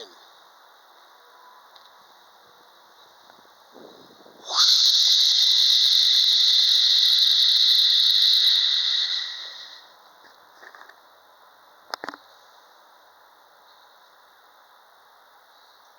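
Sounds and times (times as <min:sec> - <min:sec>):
high-pitched squealing hiss: 0:00.0 - 0:10.5.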